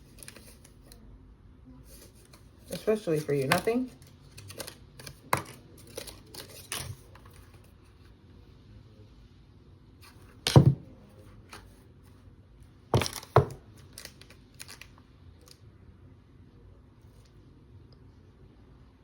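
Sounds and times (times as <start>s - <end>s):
box knocks: 10.5s - 10.8s.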